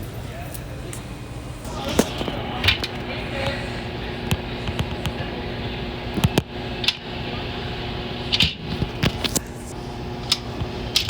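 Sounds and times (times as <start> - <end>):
steady hum: 0.0 - 11.0
sharp clicks and knocks: 6.1 - 7.1.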